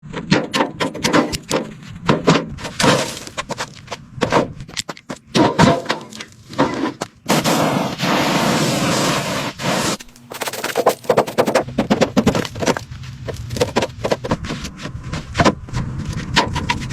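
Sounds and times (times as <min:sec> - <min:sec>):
sharp knocks and clanks: 0:00.0 - 0:07.2, 0:10.4 - 0:16.9
hissing rush: 0:07.3 - 0:10.0.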